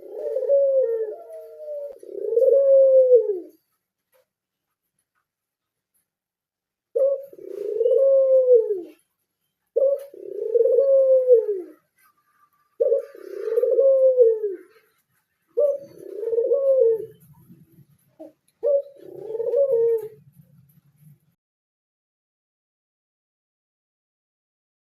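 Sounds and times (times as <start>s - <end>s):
dove cooing: 0.0s - 3.8s, 6.9s - 21.1s.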